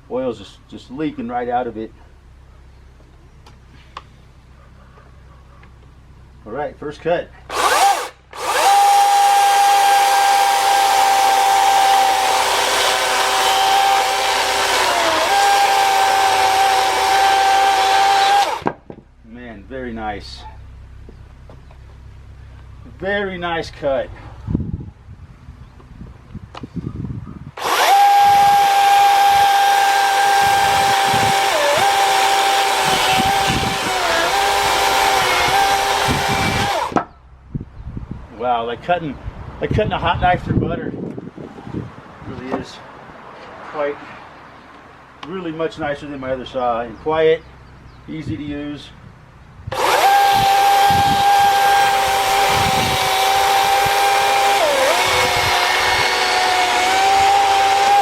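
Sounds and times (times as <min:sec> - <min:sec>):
electric chainsaw cutting wood: 0:07.5 - 0:18.7, 0:27.6 - 0:37.1, 0:49.7 - 0:58.0.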